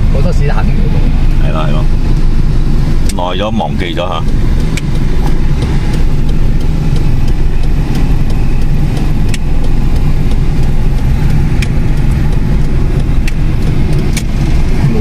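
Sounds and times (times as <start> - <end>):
car engine hum from inside cabin: 0.0 - 15.0.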